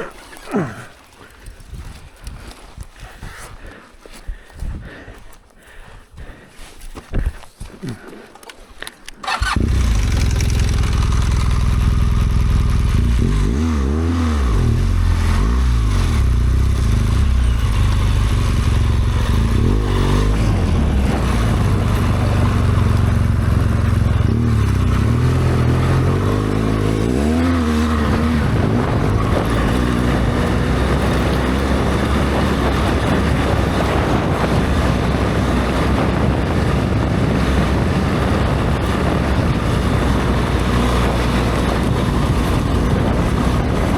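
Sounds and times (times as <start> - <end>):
motorcycle engine revving: 9.2 - 43.9.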